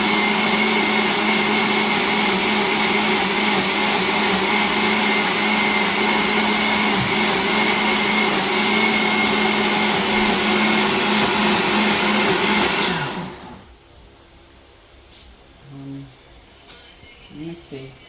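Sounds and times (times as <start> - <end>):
blender running: 0.0 - 13.7.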